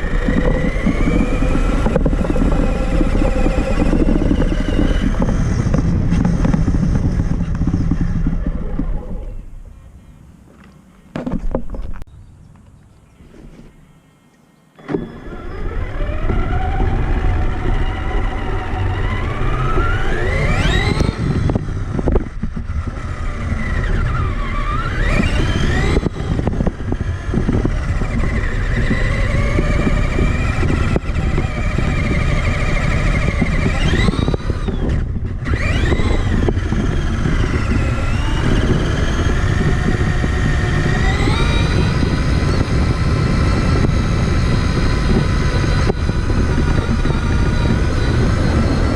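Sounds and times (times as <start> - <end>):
rc truck motor whining: 0.0 - 10.0, 14.8 - 48.9
low rumble: 0.0 - 10.5.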